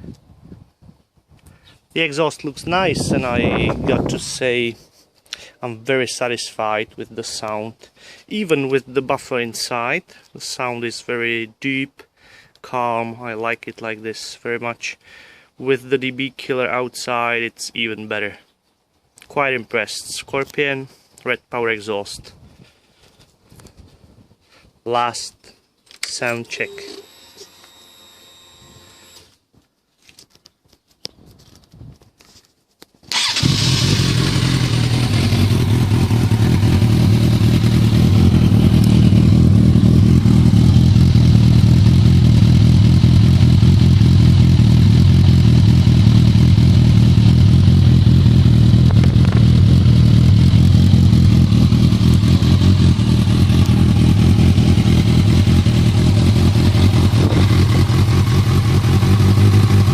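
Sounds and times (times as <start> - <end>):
motorcycle engine starting and idling: 33.1 - 59.9.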